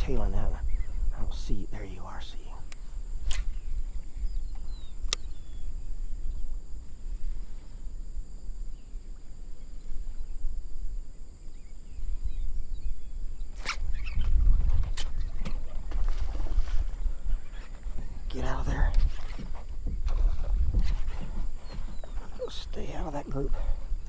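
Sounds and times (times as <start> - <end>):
wind buffeting microphone: 0.0 - 24.0
sharp clicks: 4.5 - 5.3.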